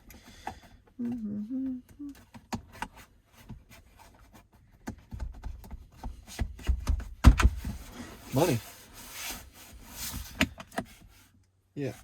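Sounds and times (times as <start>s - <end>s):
plastic rubbing and knocking: 2.2s - 11.3s.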